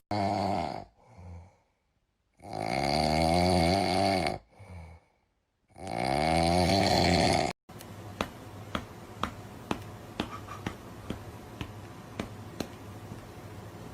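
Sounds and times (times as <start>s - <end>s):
person snoring: 0.0s - 1.8s, 2.4s - 7.6s.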